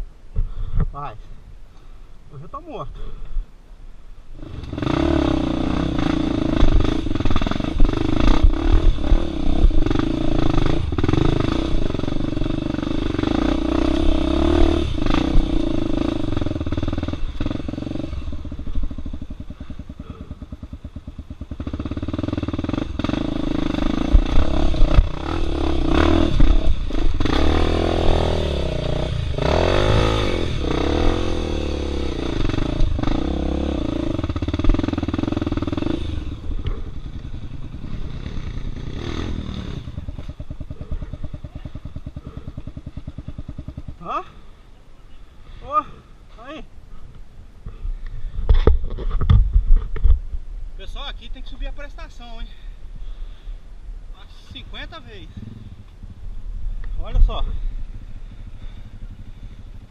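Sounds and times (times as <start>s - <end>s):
motorcycle engine revving: 4.3s - 46.7s, 54.1s - 59.9s
motorcycle clattering over rocks: 48.5s - 50.2s.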